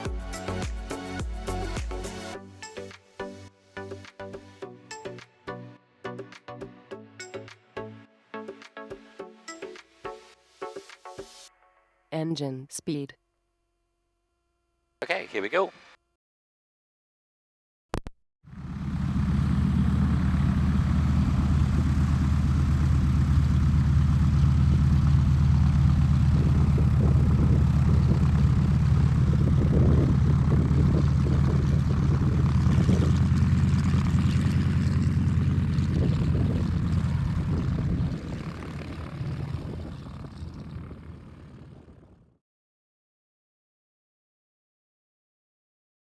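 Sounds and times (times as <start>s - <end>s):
light aircraft engine and propeller drone: 18.5s - 42.4s.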